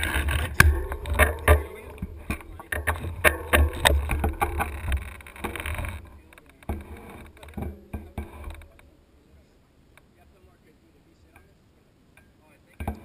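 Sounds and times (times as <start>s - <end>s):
bike rattling and knocking: 0.0s - 8.8s
wind rumbling on microphone: 0.0s - 8.8s.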